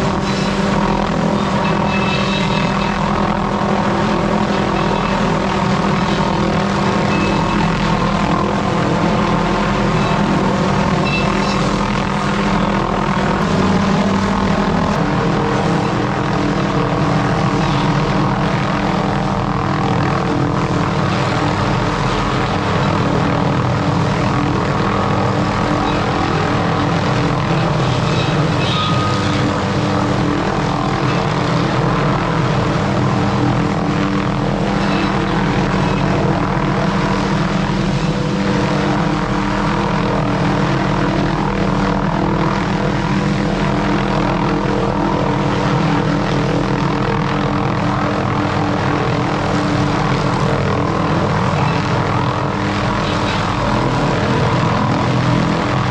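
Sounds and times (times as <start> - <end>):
motor engine running: 0.0 - 25.2.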